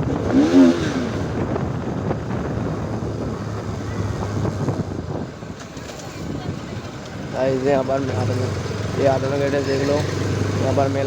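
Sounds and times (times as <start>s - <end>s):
wind rushing over microphone: 0.0s - 8.5s
motorcycle engine running: 0.0s - 11.0s.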